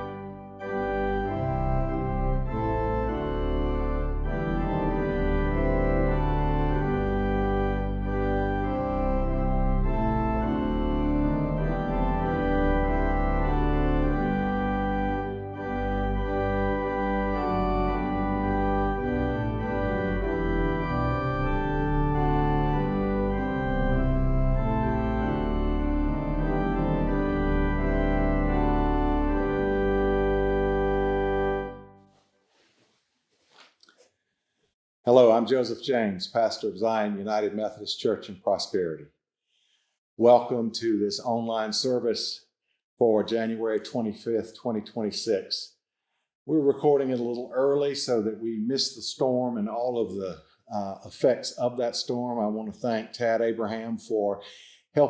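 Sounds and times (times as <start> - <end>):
organ playing sustained chords: 0.0 - 32.0, 46.5 - 55.0.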